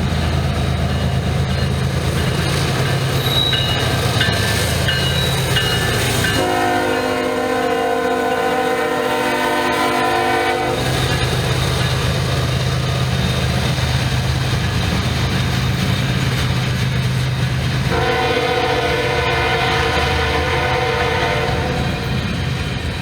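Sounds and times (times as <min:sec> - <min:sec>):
locomotive engine drone: 0:00.0 - 0:23.0
train rumble: 0:00.0 - 0:23.0
locomotive air horn chord: 0:06.3 - 0:10.9, 0:17.9 - 0:22.1.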